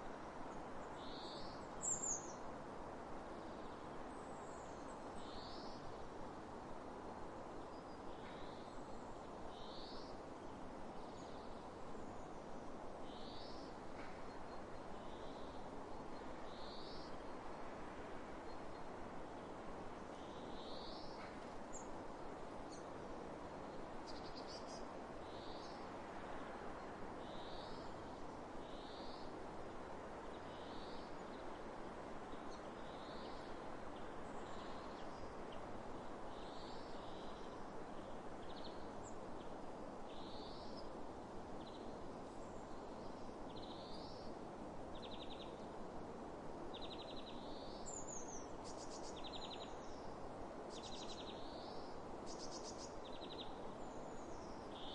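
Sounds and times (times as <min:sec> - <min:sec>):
songbird calling: 0:50.7 - 0:53.5.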